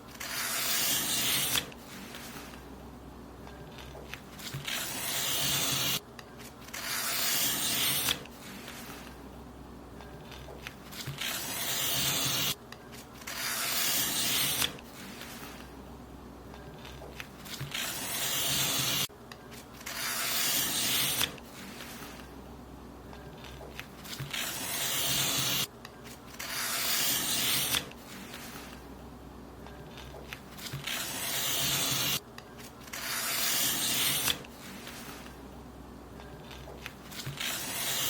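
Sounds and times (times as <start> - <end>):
paper being cut: 0.1 - 2.6, 3.7 - 9.1, 10.3 - 12.6, 13.2 - 15.6, 16.8 - 19.1, 19.8 - 22.2, 23.7 - 25.7, 26.3 - 28.8, 29.9 - 32.2, 32.8 - 35.3, 36.4 - 38.0.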